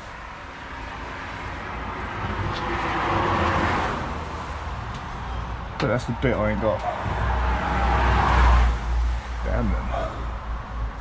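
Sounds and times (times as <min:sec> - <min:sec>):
vehicle passing by: 0:00.8 - 0:11.0.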